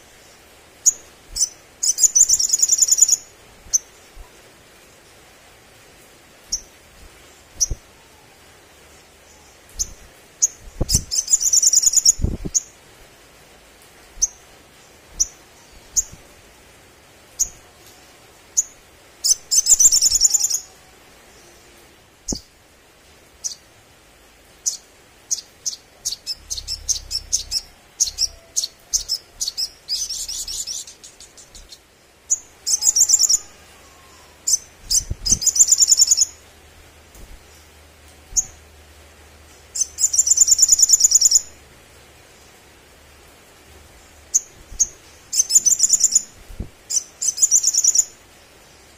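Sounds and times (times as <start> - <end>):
sunbird chirps and trills: 0.0 - 4.3, 6.5 - 12.8, 14.0 - 16.7, 17.4 - 22.6, 24.6 - 36.5, 39.4 - 41.5, 43.7 - 48.9.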